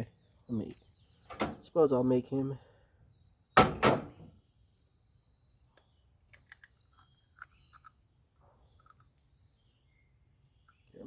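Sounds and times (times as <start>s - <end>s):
bird chirping: 3.1s - 11.0s
faint small clicks: 5.7s - 8.0s.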